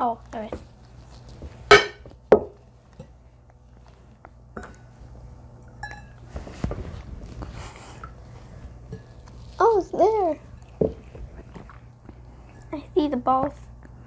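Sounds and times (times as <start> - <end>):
soft rustling: 0.2 - 3.0, 6.2 - 12.6.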